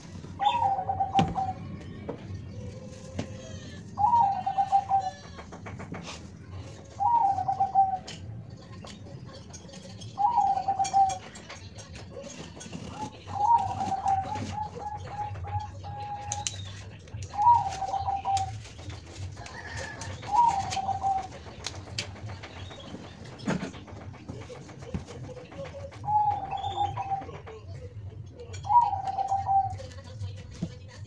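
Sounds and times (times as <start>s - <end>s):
dove cooing: 0.4s - 1.8s, 2.5s - 6.2s, 6.8s - 8.2s, 10.1s - 16.6s, 17.3s - 24.4s, 25.8s - 27.6s, 28.5s - 29.8s.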